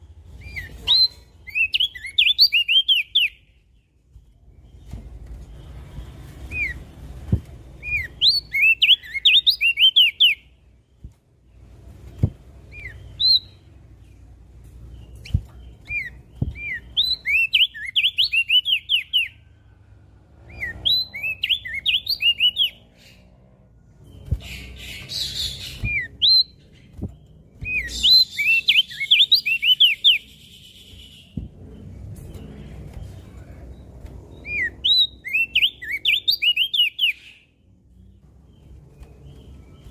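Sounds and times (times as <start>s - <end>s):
bird singing rapid sweeping chirps: 0.3s - 10.6s, 12.0s - 14.2s, 14.8s - 19.5s, 20.3s - 33.2s, 33.8s - 39.9s
low background rumble: 30.2s - 35.9s.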